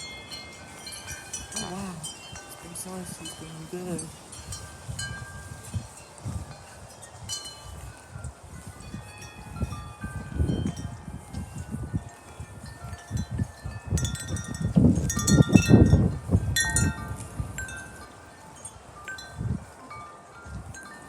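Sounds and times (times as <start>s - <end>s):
metal wind chimes ringing: 0.0s - 21.0s
wind rumbling on microphone: 0.0s - 21.0s.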